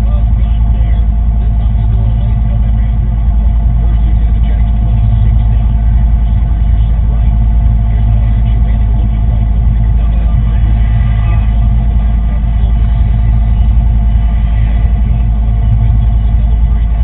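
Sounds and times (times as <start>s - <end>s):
engine rumbling: 0.0s - 17.0s.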